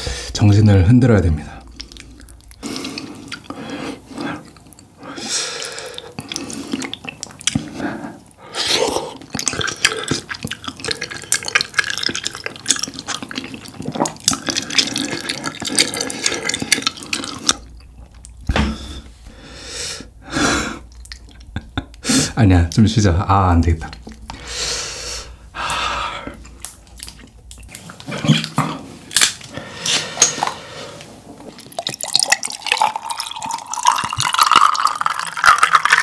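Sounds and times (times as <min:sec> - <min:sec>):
wet chewing with sticky smacks: 0:05.9 - 0:07.7, 0:09.2 - 0:18.5, 0:26.4 - 0:29.4.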